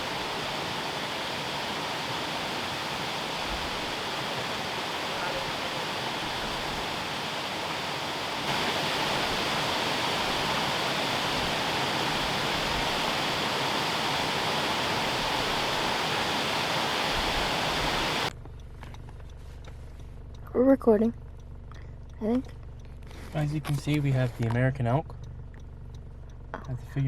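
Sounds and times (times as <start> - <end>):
waterfall roaring: 0.0 - 18.3.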